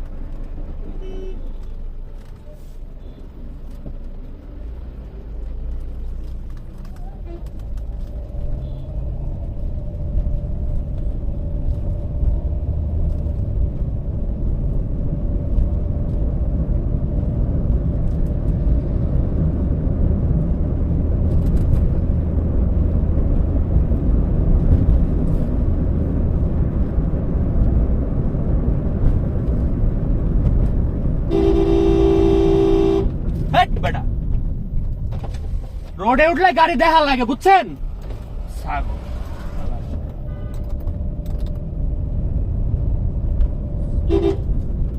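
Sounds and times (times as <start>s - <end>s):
car road rumble: 0.0s - 44.9s
car horn: 0.9s - 1.6s, 31.2s - 33.2s, 40.2s - 40.7s, 44.0s - 44.5s.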